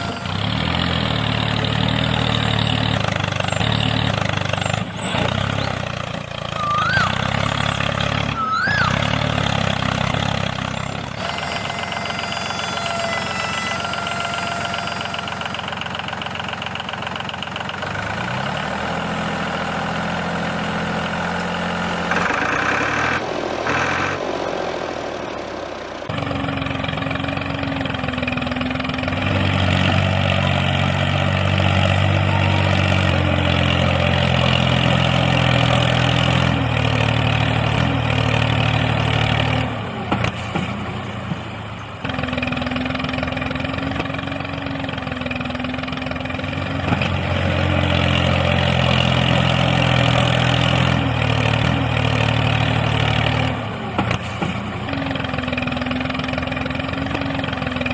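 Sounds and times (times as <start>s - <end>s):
small tractor engine idling: 13.4s - 18.3s, 40.7s - 46.7s, 51.1s - 57.9s.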